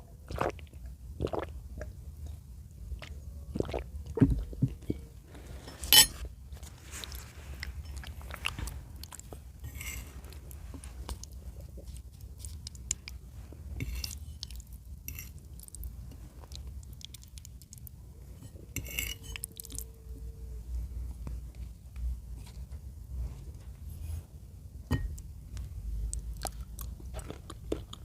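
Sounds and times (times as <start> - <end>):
close chewing and biting: 6.9 - 18.0, 26.0 - 28.0.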